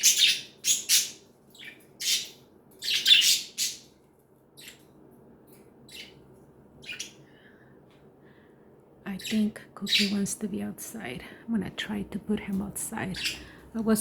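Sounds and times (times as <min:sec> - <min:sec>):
budgerigars chirping and squawking: 0:00.0 - 0:04.0, 0:04.6 - 0:04.9, 0:05.8 - 0:07.3, 0:09.1 - 0:10.3, 0:13.0 - 0:13.6.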